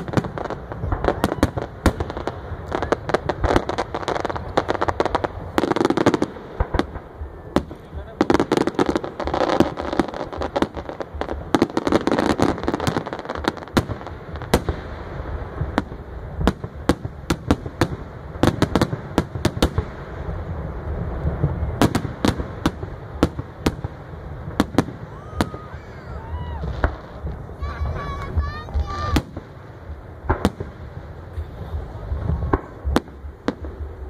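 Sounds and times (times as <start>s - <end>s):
fireworks bangs: 0.0s - 34.0s
fireworks crackle: 0.0s - 34.0s
low rumble: 22.8s - 34.0s.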